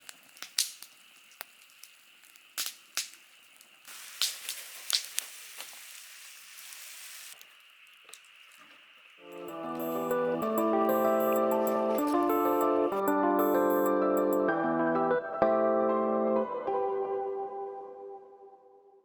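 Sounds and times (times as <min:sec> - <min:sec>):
sharp fire pops: 0:00.0 - 0:08.3
fire hissing: 0:00.0 - 0:13.0
wood fire crackling: 0:00.0 - 0:13.0.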